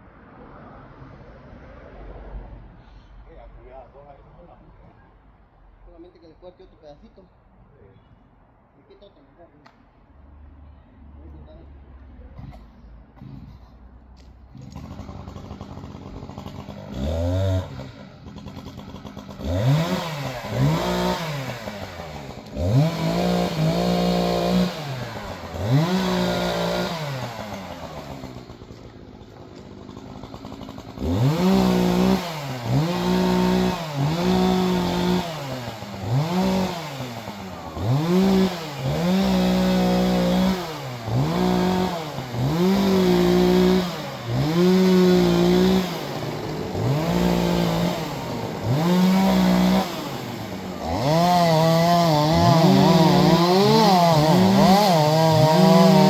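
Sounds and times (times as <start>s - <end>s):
chainsaw revving: 14.5s - 56.0s.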